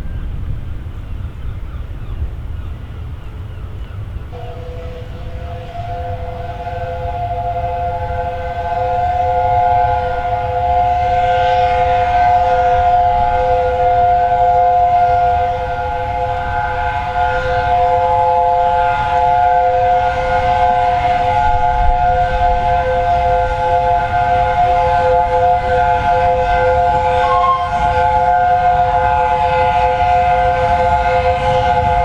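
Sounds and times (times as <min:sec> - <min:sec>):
steam locomotive whistle: 0:04.3 - 0:32.0.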